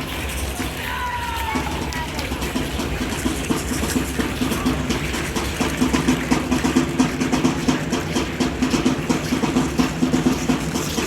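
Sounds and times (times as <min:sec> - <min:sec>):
fast steady drumming: 0:00.0 - 0:11.0.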